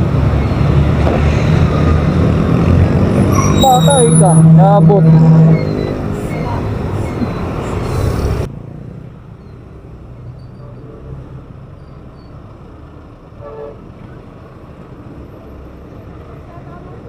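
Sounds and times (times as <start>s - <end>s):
truck engine rumbling: 0.0s - 17.0s
brief pitched sound: 3.2s - 7.6s.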